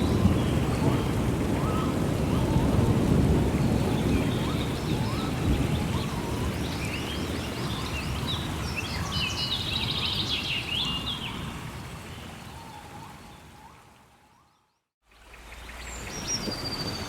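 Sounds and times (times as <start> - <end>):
thunder rumble: 0.0 - 8.6
rain: 0.0 - 17.0.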